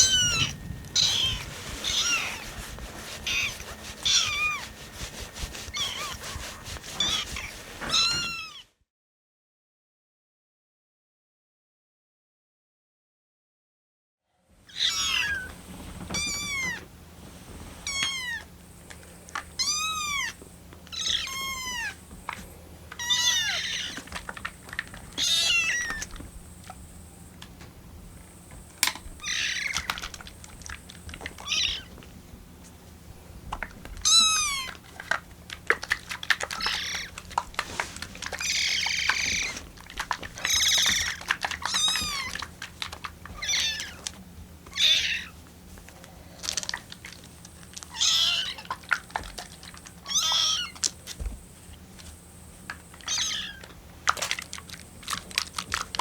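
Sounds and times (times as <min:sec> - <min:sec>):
kittens mewing: 0:00.0 - 0:04.8, 0:05.6 - 0:08.7, 0:19.6 - 0:22.1, 0:22.9 - 0:24.4, 0:25.1 - 0:26.3, 0:29.2 - 0:30.0, 0:31.3 - 0:32.0, 0:33.9 - 0:35.1, 0:36.3 - 0:42.6, 0:43.3 - 0:44.1, 0:44.7 - 0:45.4, 0:47.9 - 0:48.8, 0:53.0 - 0:53.8.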